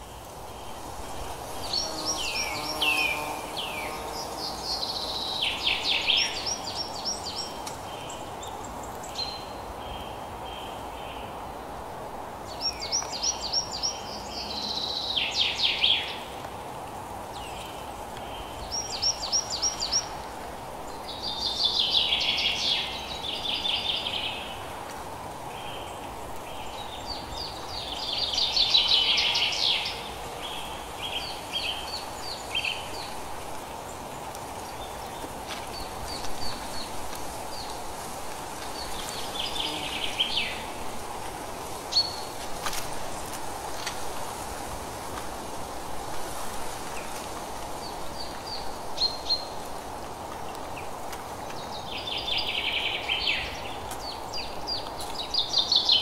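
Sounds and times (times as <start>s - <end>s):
steady background hiss: 0.0s - 56.0s.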